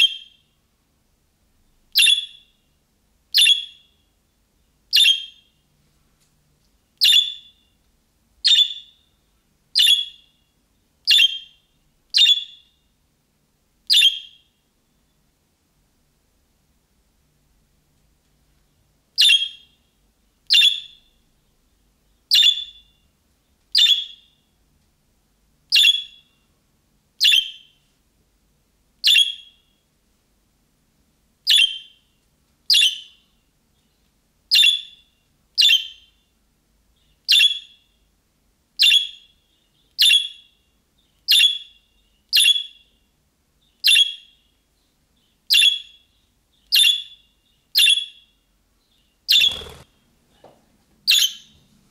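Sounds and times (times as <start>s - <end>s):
budgerigar chirping: 0.0s - 0.4s, 2.0s - 2.5s, 3.3s - 3.9s, 4.9s - 5.5s, 7.0s - 7.6s, 8.4s - 9.0s, 9.8s - 10.3s, 11.1s - 12.7s, 13.9s - 14.5s, 19.2s - 19.8s, 20.5s - 21.1s, 22.3s - 22.9s, 23.8s - 24.3s, 25.7s - 26.3s, 27.2s - 27.8s, 29.0s - 29.6s, 31.5s - 32.0s, 32.7s - 33.2s, 34.5s - 35.0s, 35.6s - 36.1s, 37.3s - 37.8s, 38.8s - 39.3s, 40.0s - 40.6s, 41.3s - 42.8s, 43.8s - 44.4s, 45.5s - 48.2s, 49.3s - 49.9s, 51.1s - 51.6s.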